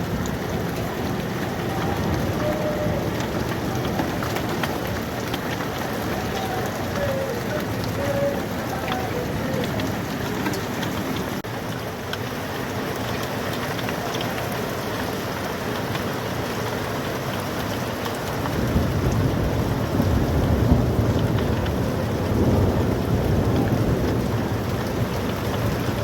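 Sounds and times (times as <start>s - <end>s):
hailstones ticking: 0.0s - 26.0s
heavy rain: 0.0s - 26.0s.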